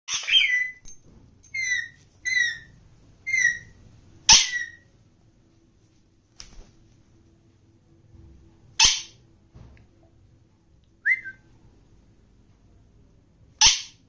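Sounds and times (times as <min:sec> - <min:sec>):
parakeet shrill calls: 0:00.1 - 0:00.8, 0:01.5 - 0:04.9, 0:08.8 - 0:09.2, 0:13.6 - 0:14.0.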